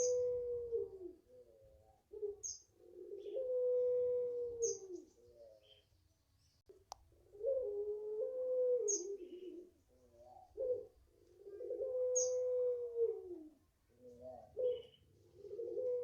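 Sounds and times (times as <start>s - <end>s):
turtle dove cooing: 0.0s - 5.9s, 6.7s - 16.0s
small bird chirping: 2.3s - 3.4s, 4.6s - 6.7s, 8.9s - 10.6s, 12.2s - 12.4s, 14.1s - 15.1s.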